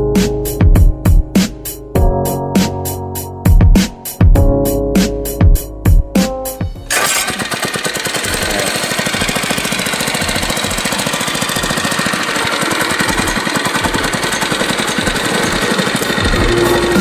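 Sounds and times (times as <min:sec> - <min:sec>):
go-kart engine running: 0:06.9 - 0:17.0.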